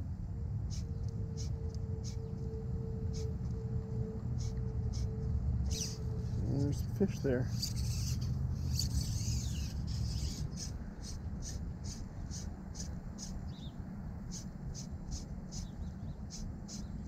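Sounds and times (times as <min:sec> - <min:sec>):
insect chirping: 0:00.0 - 0:17.0.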